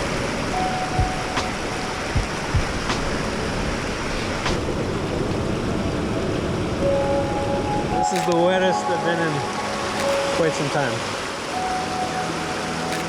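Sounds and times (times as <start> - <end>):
rain: 0.0 - 13.0
waterfall roaring: 0.0 - 13.0
low thumps: 1.0 - 3.3.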